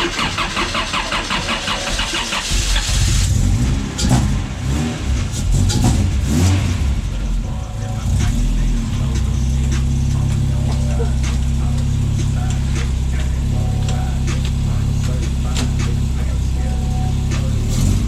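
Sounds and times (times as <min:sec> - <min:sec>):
engine cranking on starter: 0:00.0 - 0:07.2, 0:07.9 - 0:18.0
engine revving: 0:00.0 - 0:18.0.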